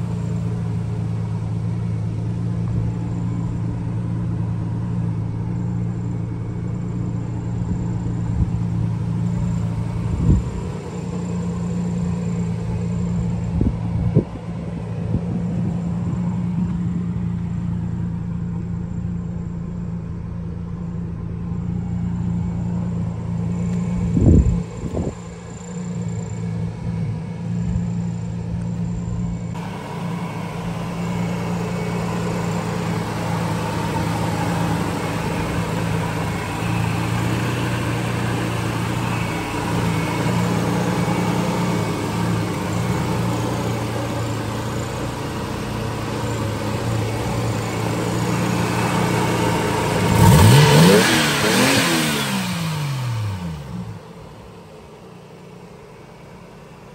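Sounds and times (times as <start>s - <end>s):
car engine idling and revving: 0.0s - 56.9s.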